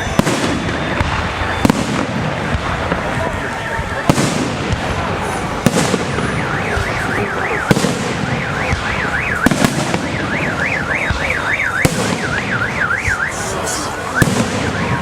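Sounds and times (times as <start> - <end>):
firework bangs: 0.0 - 15.0
car alarm warbling: 6.1 - 15.0.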